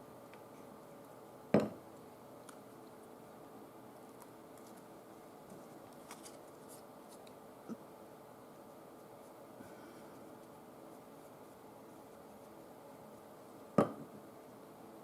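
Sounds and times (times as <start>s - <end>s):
thump on a tabletop: 1.5s - 1.8s, 13.8s - 14.1s
paper rustling: 4.2s - 4.9s, 5.5s - 7.4s.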